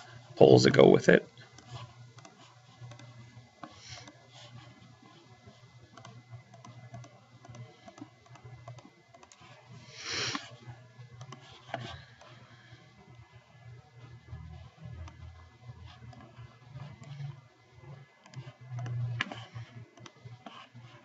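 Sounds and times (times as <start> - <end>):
low steady hum: 0.0 - 21.0
mouse and keyboard clicks: 1.5 - 4.8, 5.9 - 9.6, 11.2 - 11.9, 18.2 - 21.0
short hiss: 9.9 - 10.4.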